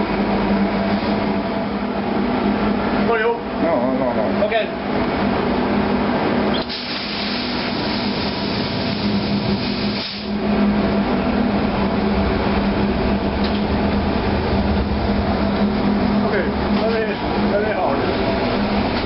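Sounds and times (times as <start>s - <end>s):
constant low hum: 0.0s - 19.0s
diesel generator running: 0.0s - 19.0s.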